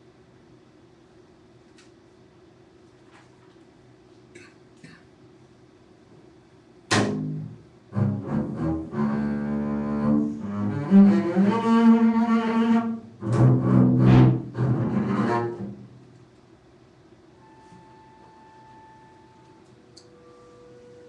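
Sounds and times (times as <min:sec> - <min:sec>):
solo bowed string instrument: 0:07.2 - 0:15.9.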